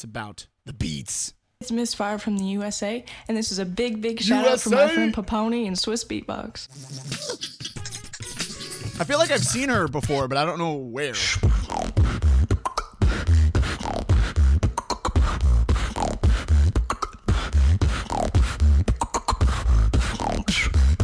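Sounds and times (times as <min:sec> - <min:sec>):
woman beatboxing: 0:04.2 - 0:05.2, 0:06.7 - 0:09.0, 0:11.4 - 0:21.0.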